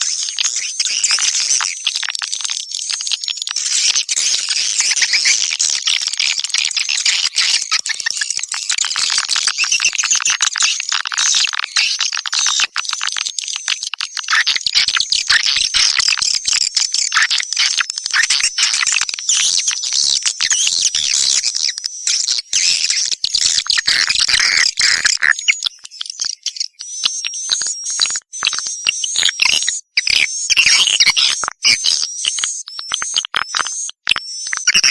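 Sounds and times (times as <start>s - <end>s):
swiftlets twittering and chirping: 0.0s - 34.9s.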